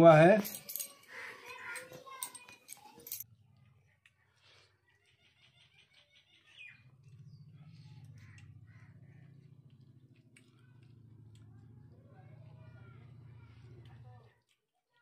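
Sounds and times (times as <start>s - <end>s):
faint bird calls: 3.8s - 10.7s.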